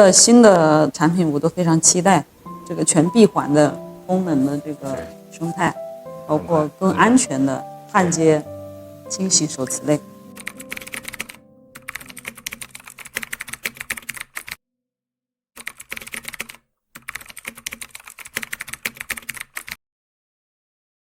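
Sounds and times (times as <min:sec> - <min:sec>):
keyboard typing clicks: 0:10.3 - 0:14.6, 0:15.6 - 0:19.8.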